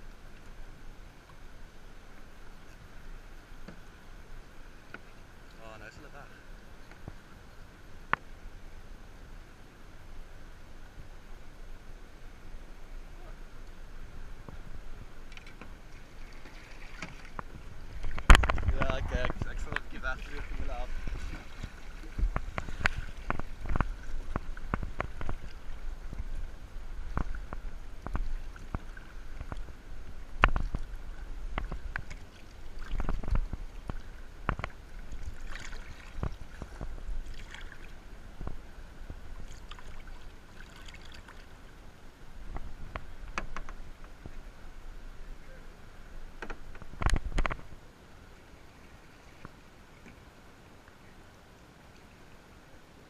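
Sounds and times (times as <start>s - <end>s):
wind rumble on microphone: 10.0s - 40.5s, 42.2s - 47.9s
water splashing against hull: 12.5s - 41.8s, 46.2s - 47.8s.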